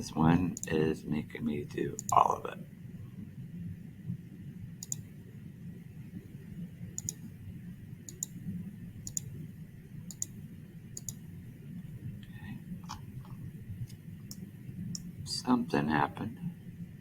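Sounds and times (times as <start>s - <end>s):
low steady hum: 0.0s - 17.0s
mouse button clicking: 2.0s - 2.2s, 4.8s - 5.1s, 7.0s - 7.3s, 10.1s - 10.4s.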